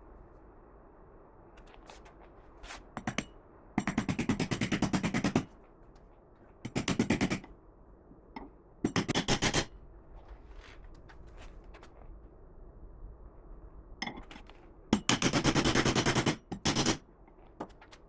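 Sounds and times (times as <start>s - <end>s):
rapid mechanical hammering: 3.0s - 5.5s, 6.7s - 7.5s, 8.8s - 9.7s, 15.0s - 17.0s.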